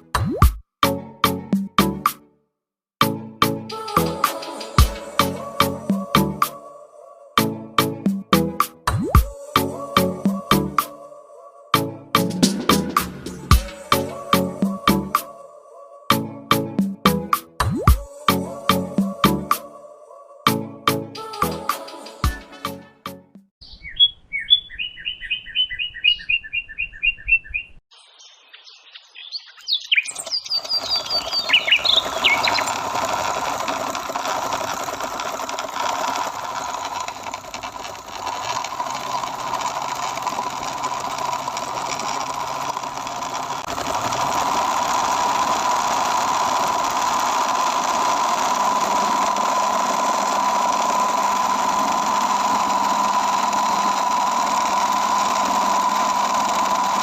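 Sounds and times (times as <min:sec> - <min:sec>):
high chirps: 0:23.6 - 0:32.8
small motor whining: 0:30.2 - 0:57.0.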